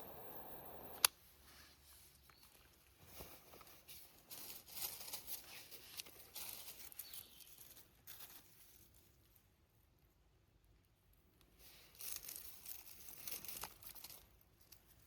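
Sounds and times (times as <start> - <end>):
dry leaf litter rustling: 2.7 - 9.1, 11.7 - 15.0.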